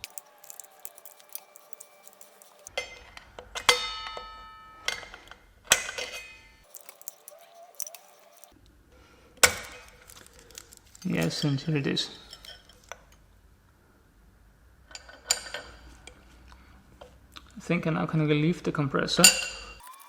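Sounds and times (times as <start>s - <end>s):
pry tool scraping metal: 0.0s - 2.7s, 6.6s - 8.6s, 19.8s - 20.0s.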